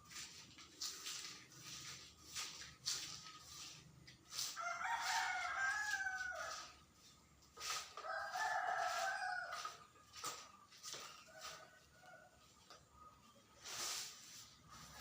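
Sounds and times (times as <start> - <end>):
rooster crowing: 4.5 - 6.8, 8.0 - 9.8.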